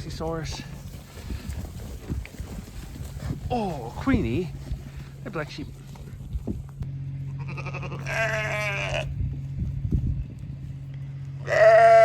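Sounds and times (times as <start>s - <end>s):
steady low hum: 0.0s - 11.8s
sheep bleating: 7.3s - 9.1s, 11.4s - 12.0s.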